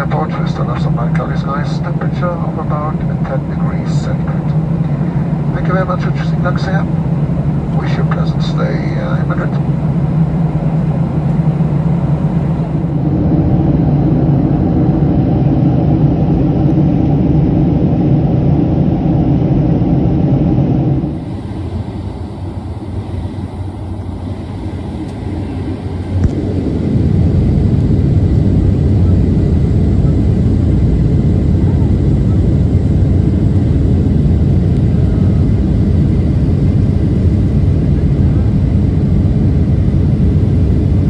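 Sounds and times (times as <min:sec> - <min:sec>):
airliner cabin engine rumble: 0:00.0 - 0:41.0.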